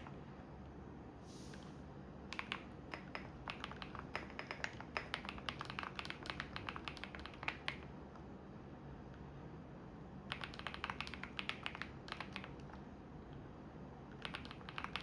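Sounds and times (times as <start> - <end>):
brief hiss: 1.2 - 1.8
typing on computer keyboard: 2.3 - 8.0, 10.3 - 12.8, 14.1 - 15.0.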